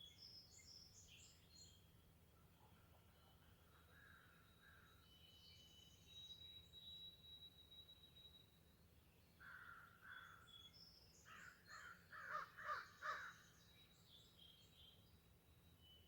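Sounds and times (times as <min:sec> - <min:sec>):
crow cawing: 0:11.3 - 0:13.3.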